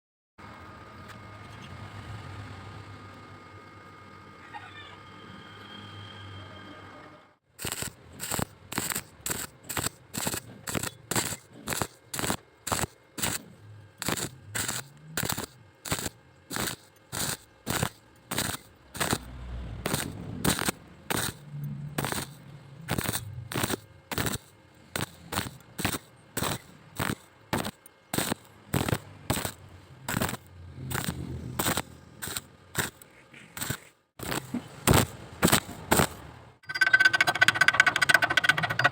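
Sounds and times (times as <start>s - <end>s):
welding arc crackling in bursts: 7.6s - 36.4s.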